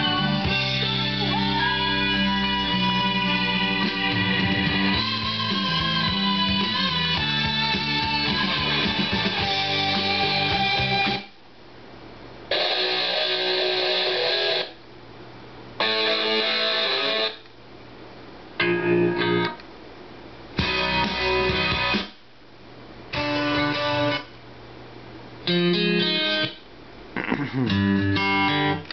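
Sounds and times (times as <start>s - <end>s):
rock music with electric guitar: 0.0s - 11.3s, 15.8s - 17.4s, 18.6s - 19.6s, 20.6s - 22.2s, 23.1s - 24.3s, 25.5s - 26.6s, 27.5s - 28.9s.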